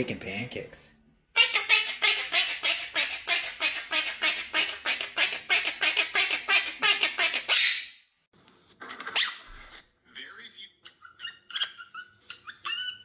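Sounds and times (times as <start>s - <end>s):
parrot squawking: 1.4s - 8.0s, 8.8s - 9.8s, 10.8s - 13.0s.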